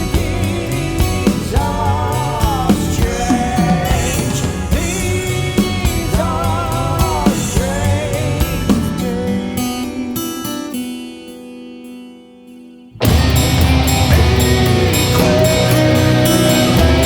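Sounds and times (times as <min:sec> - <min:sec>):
drum beat: 0:00.0 - 0:09.2, 0:13.0 - 0:17.0
wavering held vocal notes: 0:13.5 - 0:17.0.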